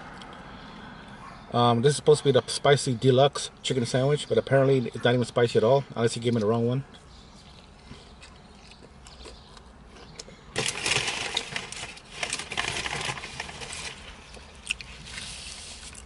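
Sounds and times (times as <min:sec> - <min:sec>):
person chewing crunchy food: 0:07.4 - 0:11.6, 0:14.3 - 0:16.0.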